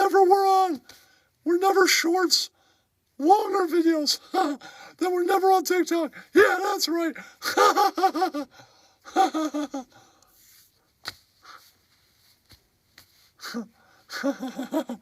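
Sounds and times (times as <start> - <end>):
man making wordless vocal sounds: 3.2 - 8.4, 13.4 - 15.0.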